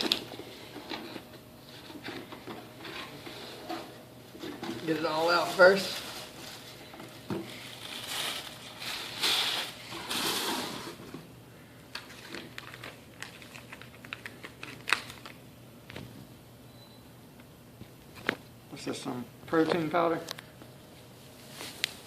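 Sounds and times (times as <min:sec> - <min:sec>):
packaging rustling and crinkling: 0:04.8 - 0:10.9, 0:12.0 - 0:15.4, 0:21.3 - 0:22.0.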